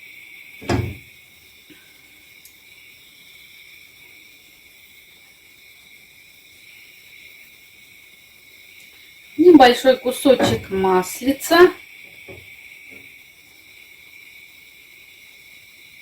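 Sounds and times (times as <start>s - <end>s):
high-pitched hiss: 0.0s - 16.0s
loud clunk: 0.6s - 1.0s, 10.3s - 10.9s.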